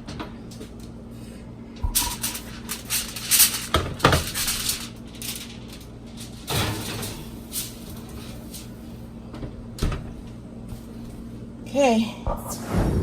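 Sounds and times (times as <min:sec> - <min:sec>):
foil-covered baking dish clatter: 0:01.9 - 0:08.9
foil rustling and scraping: 0:02.0 - 0:08.9.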